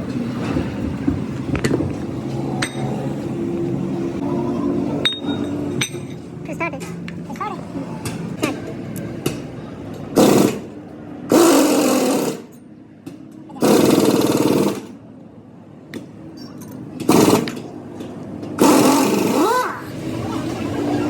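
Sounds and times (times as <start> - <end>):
power tool running: 10.2 - 12.5, 13.6 - 15.0, 17.1 - 17.6, 18.6 - 19.6.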